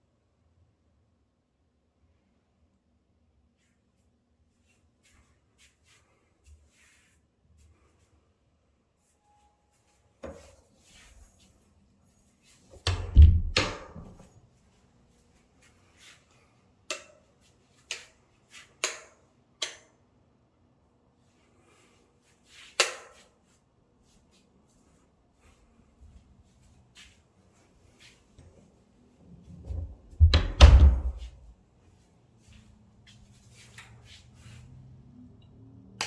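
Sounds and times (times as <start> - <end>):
sharp knocks: 12.9 - 14.2.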